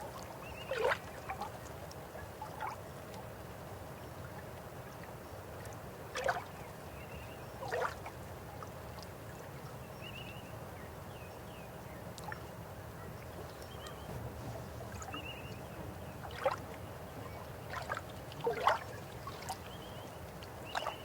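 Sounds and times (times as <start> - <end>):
gurgling water splashes: 0.0 - 3.4, 4.2 - 6.8, 7.6 - 9.4, 13.6 - 21.0
river water flowing: 12.2 - 21.0.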